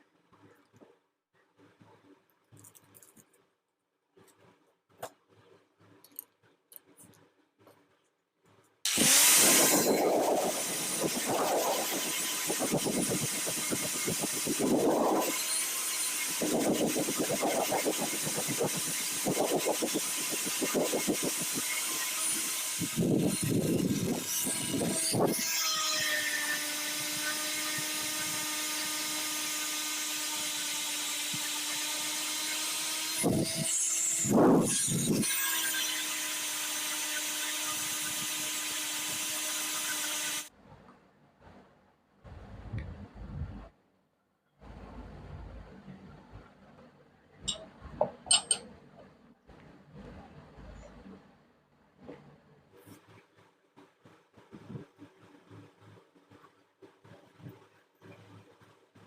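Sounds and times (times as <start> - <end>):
electric power tool whining: 8.9 - 40.5.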